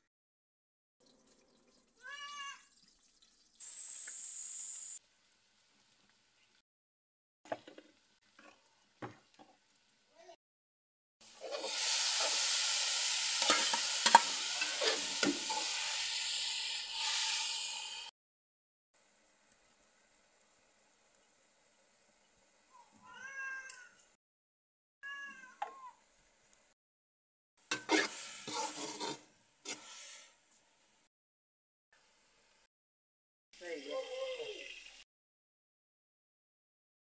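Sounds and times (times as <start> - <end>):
vegetables sizzling in oil: 3.5 - 5.0, 11.2 - 18.1, 27.6 - 30.3
metal spatula scraping a pan: 13.4 - 15.9, 16.9 - 17.5, 27.7 - 30.3.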